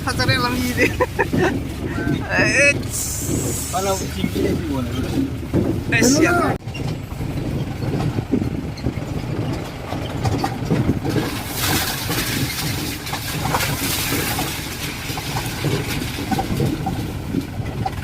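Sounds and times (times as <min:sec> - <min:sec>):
engine running steadily: 0:00.0 - 0:18.0
hiss: 0:02.9 - 0:04.1.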